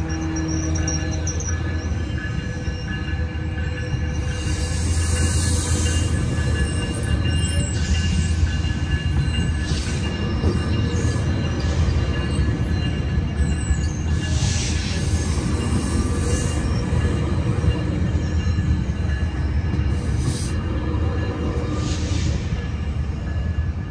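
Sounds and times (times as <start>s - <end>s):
high-pitched wheel squeals: 0.0s - 8.5s
train wheels rumbling on rail: 0.0s - 23.9s.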